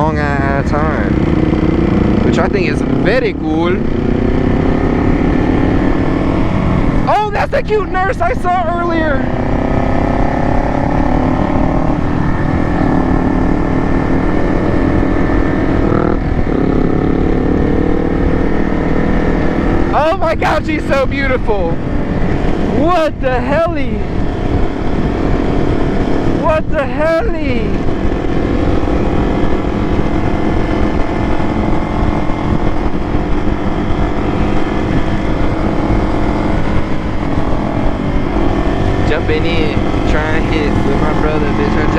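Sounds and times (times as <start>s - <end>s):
motorcycle engine running: 0.0s - 41.9s
wind rumbling on microphone: 0.0s - 41.9s.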